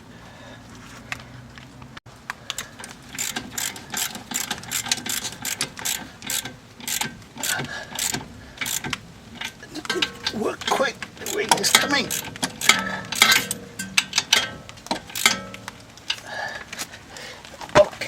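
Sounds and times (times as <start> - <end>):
ratchet wrench clicking: 2.6 - 10.4, 11.2 - 15.8.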